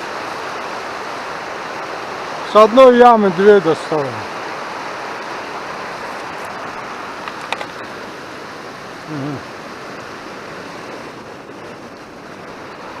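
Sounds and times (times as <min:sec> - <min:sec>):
mountain stream rushing: 0:00.0 - 0:13.0
wavering voice: 0:09.1 - 0:09.4.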